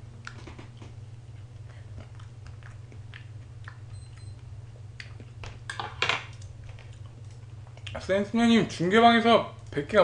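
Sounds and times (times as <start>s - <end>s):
steady low hum: 0.0s - 10.0s
wet mouth clicks chewing: 0.2s - 5.4s.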